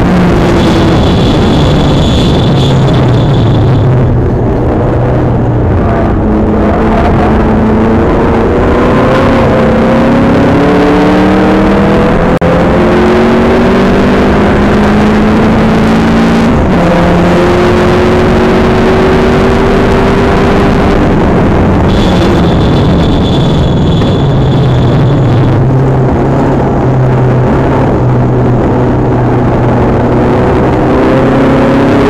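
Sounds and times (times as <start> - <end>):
car engine accelerating: 0.0 - 32.0
thin high whine: 0.4 - 4.1, 21.9 - 25.7.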